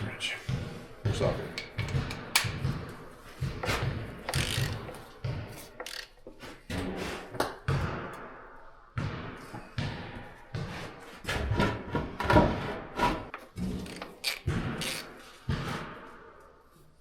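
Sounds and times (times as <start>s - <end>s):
metal knocks: 1.1s - 2.9s
ratchet clicking: 4.3s - 5.1s, 5.8s - 6.1s, 13.9s - 15.1s.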